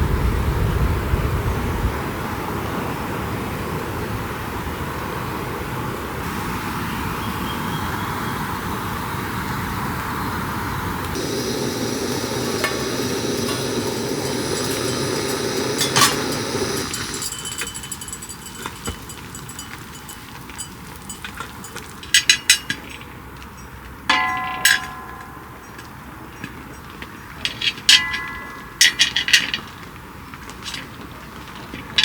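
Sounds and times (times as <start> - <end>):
steady hiss: 6.2 - 19.0
dish ringing when struck: 11.2 - 19.0, 24.1 - 25.8
cookware and utensils clinking: 11.2 - 23.0, 24.1 - 25.9.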